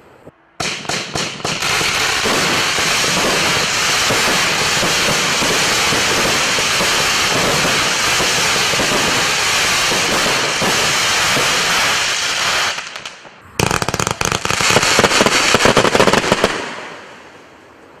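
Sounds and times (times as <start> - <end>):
rapid fireworks bangs: 0.6 - 17.1
fireworks hissing and crackling: 0.6 - 17.4.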